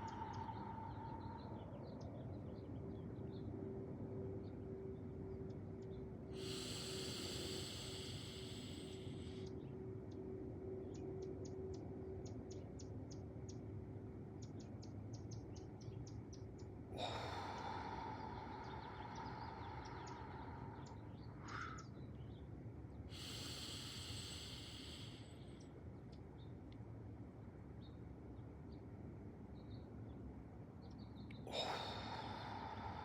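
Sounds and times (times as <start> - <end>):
person breathing out: 0.0 - 1.8, 6.4 - 9.5, 17.0 - 21.9, 23.1 - 25.5, 31.5 - 33.0
birds chipping: 0.0 - 3.5, 14.4 - 25.7.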